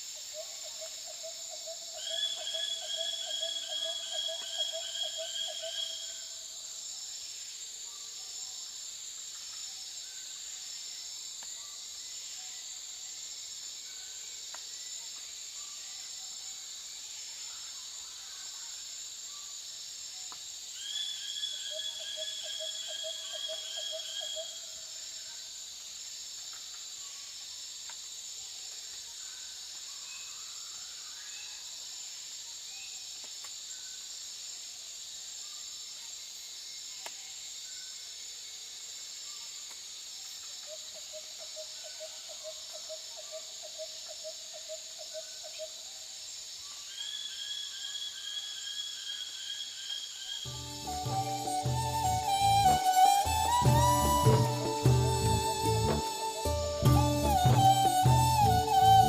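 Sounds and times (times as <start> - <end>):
high-pitched insect chorus: 0.0 - 59.0
creature calling rapid notes: 50.5 - 59.0.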